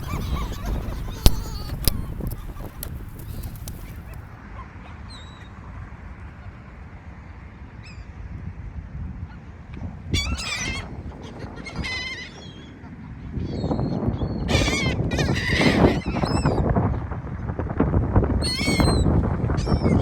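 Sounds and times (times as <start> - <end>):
gulls calling: 0.0 - 4.3.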